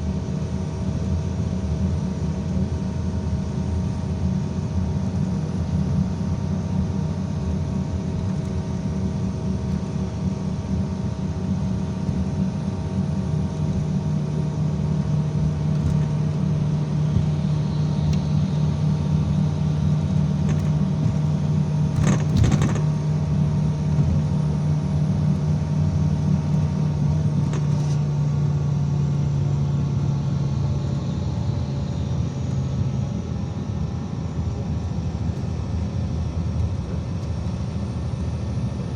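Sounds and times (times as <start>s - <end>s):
bus engine drone: 0.0s - 38.9s
road noise: 2.5s - 38.9s
short rattle: 20.0s - 23.2s, 27.4s - 28.1s.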